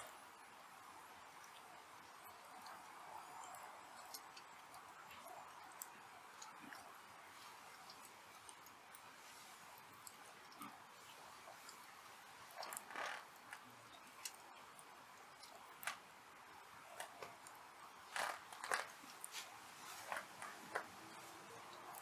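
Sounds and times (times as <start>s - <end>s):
faint steady hiss: 0.0s - 22.0s
fire crackling and popping: 12.4s - 22.0s.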